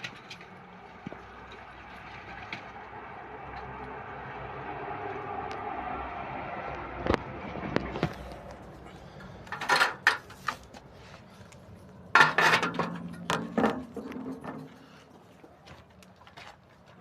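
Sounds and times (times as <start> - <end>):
clattering knocks and rattles: 9.4 - 10.8, 12.1 - 16.9.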